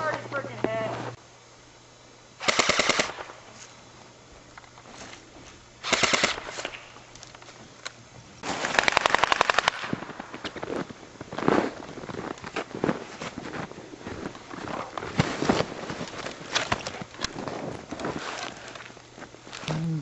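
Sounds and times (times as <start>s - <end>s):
airsoft guns firing bursts: 2.4s - 3.3s, 5.8s - 6.8s, 8.4s - 10.2s.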